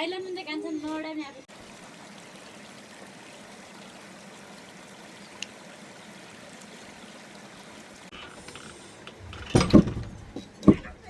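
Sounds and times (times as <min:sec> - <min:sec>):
running water: 0:00.8 - 0:11.0.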